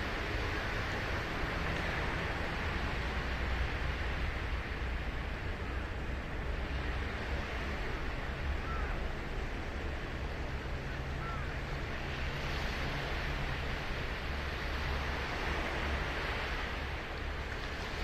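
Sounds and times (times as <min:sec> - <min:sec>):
waves breaking on a beach: 0:00.0 - 0:18.0.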